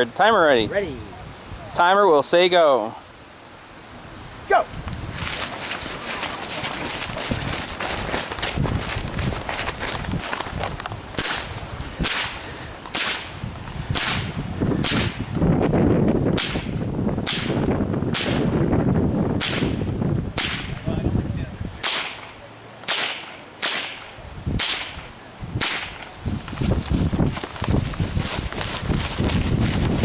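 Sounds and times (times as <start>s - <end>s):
rifle shots cracking: 12.9s - 13.3s, 22.9s - 24.9s.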